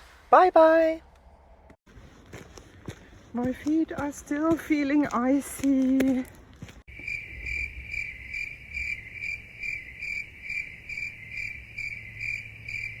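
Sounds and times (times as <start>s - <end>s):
cricket chirping: 6.9s - 13.0s.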